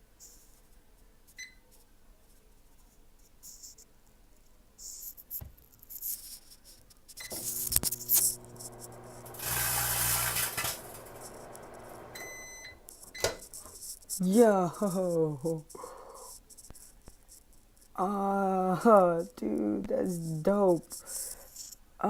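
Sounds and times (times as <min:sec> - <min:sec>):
chip bag crackling: 0:07.4 - 0:12.0
microwave oven humming: 0:07.4 - 0:12.9
microwave beeps: 0:11.8 - 0:13.4.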